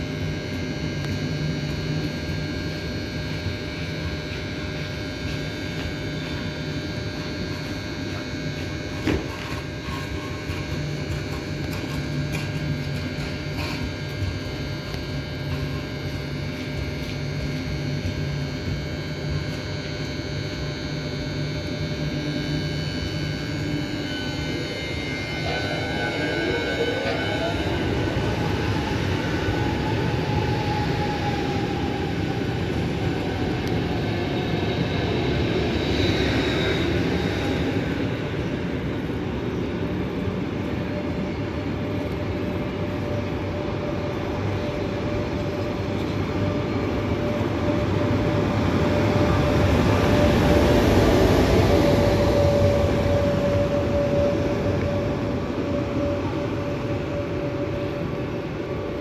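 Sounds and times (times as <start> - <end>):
steady hum: 0.0 - 59.0
train wheels rumbling on rail: 0.0 - 59.0.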